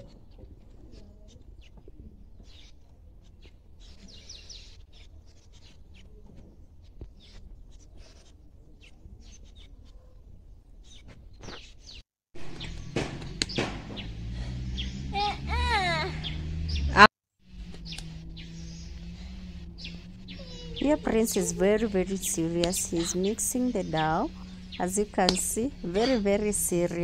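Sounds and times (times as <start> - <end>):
small birds chirping: 0.0 - 27.0
low steady rumble: 12.4 - 27.0.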